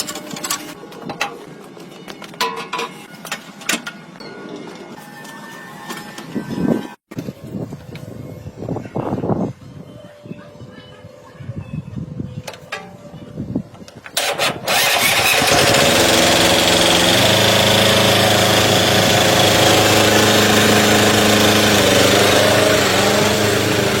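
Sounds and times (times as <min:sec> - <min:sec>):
tractor engine starting: 0:13.9 - 0:24.0.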